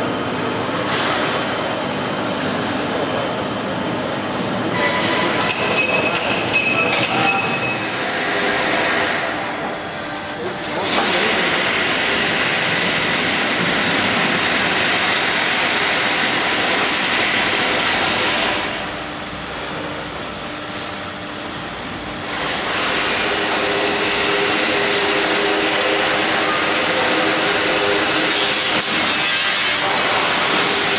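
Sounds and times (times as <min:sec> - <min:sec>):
tube bending machine hissing: 0:22.2 - 0:30.9.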